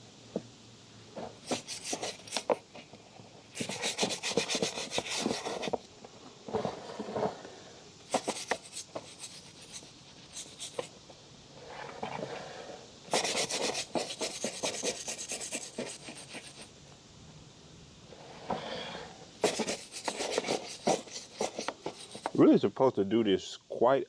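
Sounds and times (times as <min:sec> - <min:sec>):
drive chain being scrubbed: 0:01.5 - 0:02.5, 0:03.6 - 0:05.8, 0:08.1 - 0:10.9, 0:13.1 - 0:16.7, 0:19.4 - 0:22.4.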